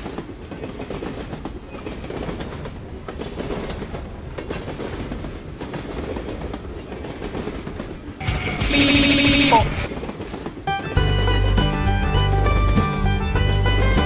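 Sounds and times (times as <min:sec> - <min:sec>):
freight train rumbling: 0:00.0 - 0:14.0
wheels clacking over rail joints: 0:00.0 - 0:14.0.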